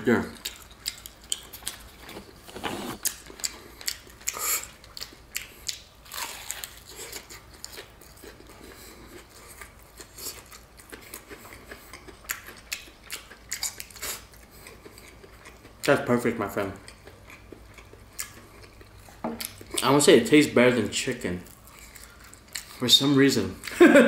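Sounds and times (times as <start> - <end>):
crunching crispy fried food: 3.0 - 11.3.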